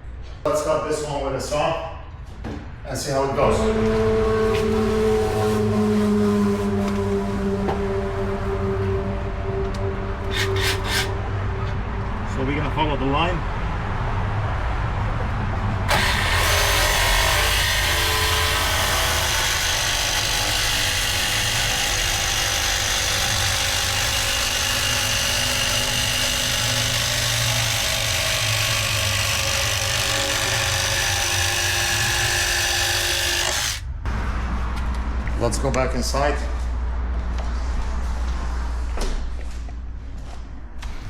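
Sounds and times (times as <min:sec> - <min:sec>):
power saw cutting vinyl plank: 0:03.6 - 0:07.8, 0:10.3 - 0:11.2, 0:15.9 - 0:33.9.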